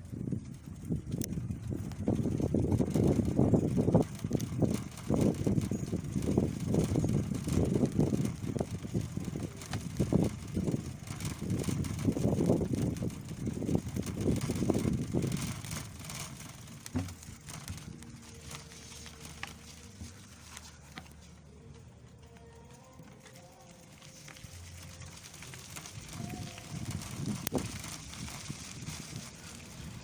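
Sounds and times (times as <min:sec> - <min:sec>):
wind on microphone: 0:00.0 - 0:18.8, 0:24.8 - 0:30.0
road noise: 0:00.0 - 0:30.0.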